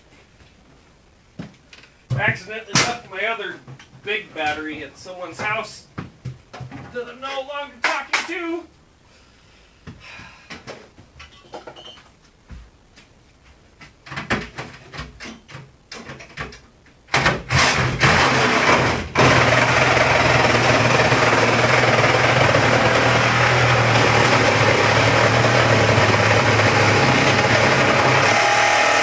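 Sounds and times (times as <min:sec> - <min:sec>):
cordless power tool cutting: 0:17.5 - 0:29.0.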